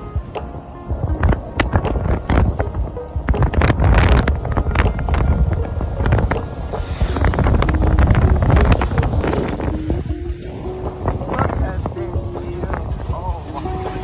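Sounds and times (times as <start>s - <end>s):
low rumble: 0.0s - 14.0s
wind buffeting microphone: 0.0s - 14.0s.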